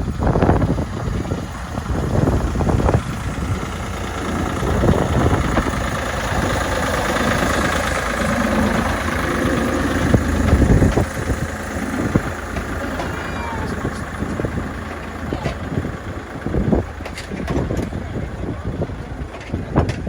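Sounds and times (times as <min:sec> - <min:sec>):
miniature locomotive engine running: 0:00.0 - 0:20.0.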